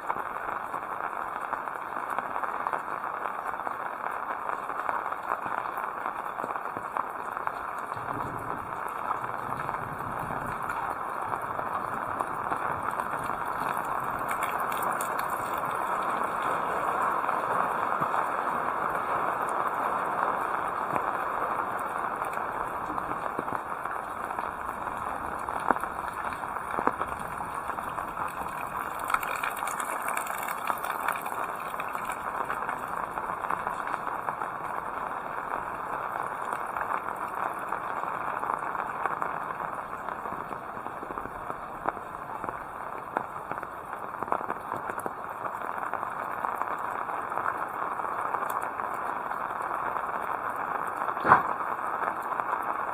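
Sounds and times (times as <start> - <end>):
heavy rain: 0.0 - 52.9.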